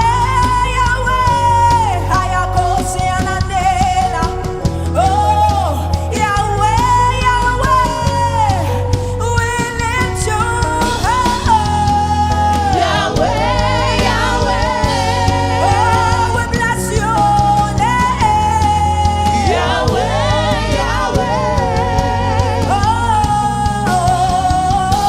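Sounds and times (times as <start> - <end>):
bass: 0.0 - 25.0
keyboard: 0.0 - 25.0
backing singers: 9.8 - 25.0.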